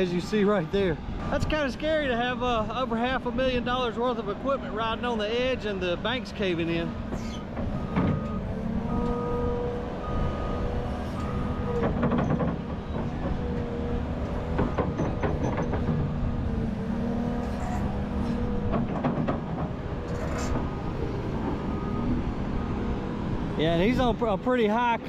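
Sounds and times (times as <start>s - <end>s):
excavator engine drone: 0.0s - 25.0s
hydraulic whine: 6.7s - 23.4s
clanking and rattling: 11.2s - 16.5s, 17.3s - 20.8s.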